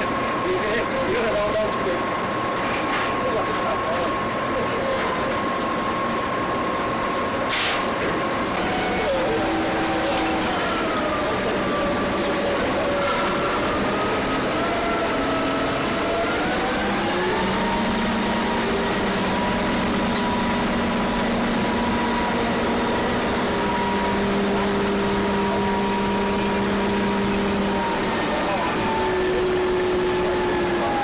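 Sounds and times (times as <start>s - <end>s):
boat engine running: 8.1s - 31.0s.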